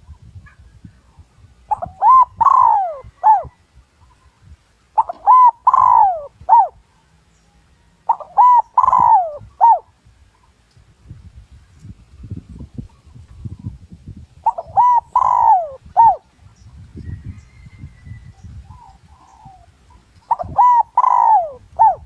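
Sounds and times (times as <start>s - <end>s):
dove cooing: 1.7s - 3.6s, 5.0s - 6.8s, 8.0s - 9.9s, 14.4s - 16.3s, 18.6s - 22.0s.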